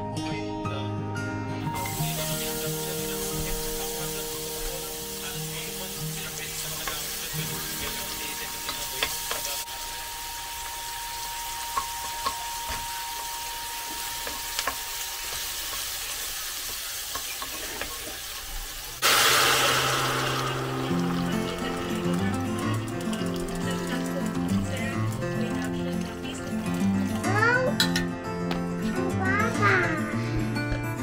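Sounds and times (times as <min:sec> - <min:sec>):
onion and garlic sizzling in oil: 0:01.8 - 0:27.9
liquid poured into hot pot: 0:19.0 - 0:27.2.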